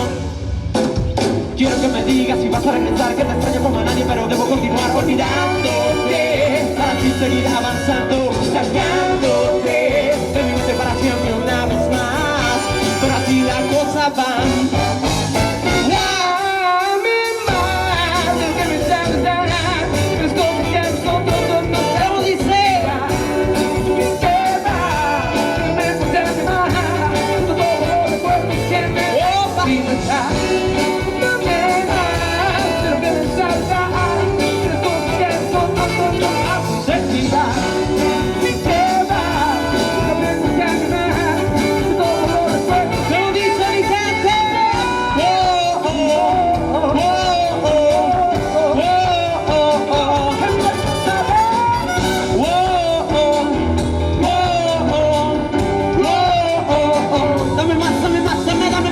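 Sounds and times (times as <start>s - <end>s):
bending lead guitar notes: 0.0s - 16.5s, 17.3s - 58.9s
live rock band playing: 0.0s - 58.9s.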